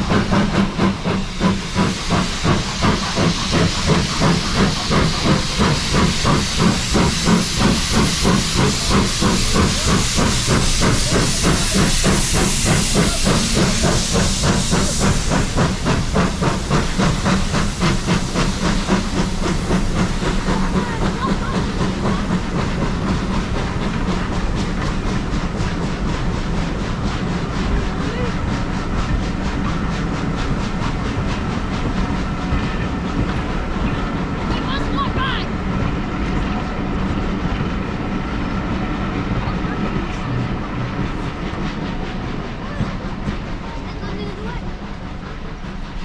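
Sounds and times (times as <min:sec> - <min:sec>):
steam hissing: 0:00.0 - 0:46.0
steam locomotive exhaust beats: 0:00.0 - 0:46.0.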